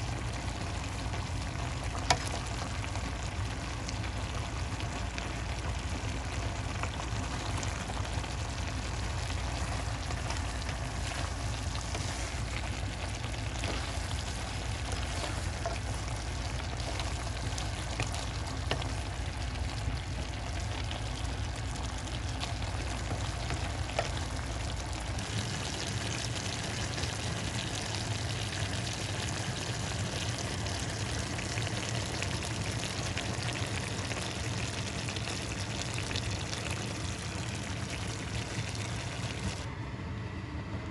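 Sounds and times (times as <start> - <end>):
low hum: 0.0 - 28.3
food sizzling in a pan: 0.0 - 39.6
small crackles: 0.0 - 39.6.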